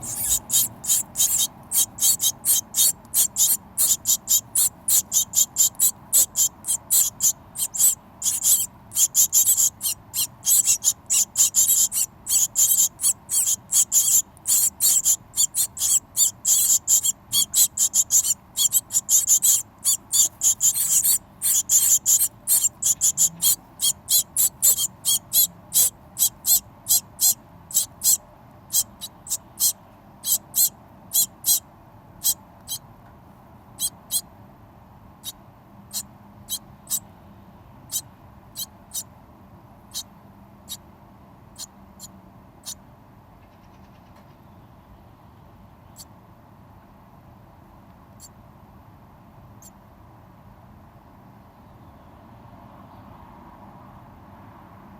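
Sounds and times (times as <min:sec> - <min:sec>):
hungry birds cheeping: 0:00.0 - 0:31.6, 0:32.2 - 0:32.9, 0:33.7 - 0:34.3, 0:35.2 - 0:39.1.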